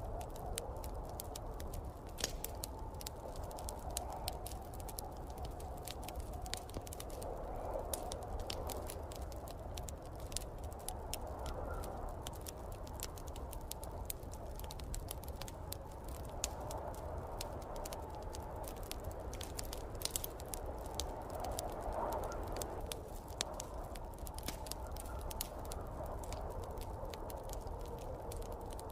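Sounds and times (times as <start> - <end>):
snowstorm wind: 0.0 - 28.9
wood fire crackling: 0.0 - 28.9.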